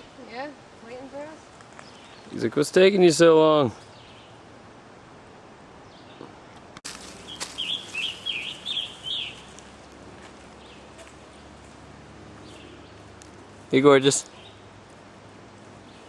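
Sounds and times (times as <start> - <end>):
faint outdoor background: 0.0 - 16.0
bird chirping song: 1.8 - 2.4, 3.8 - 4.4, 5.8 - 6.3, 6.9 - 11.6, 12.4 - 13.4, 14.2 - 14.8, 15.4 - 16.0.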